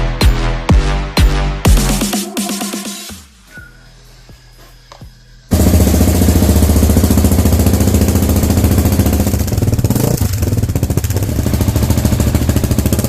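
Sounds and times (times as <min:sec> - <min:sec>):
motorcycle engine running: 0:04.9 - 0:13.0.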